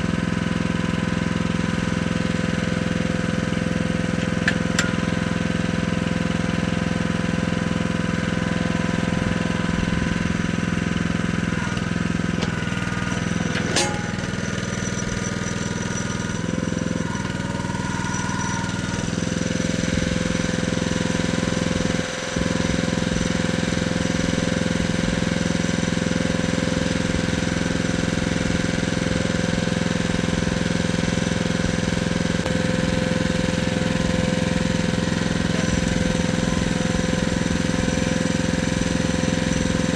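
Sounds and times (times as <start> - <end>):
excavator engine running: 0.0 - 39.9
sharp click: 4.2 - 5.2, 11.7 - 16.1.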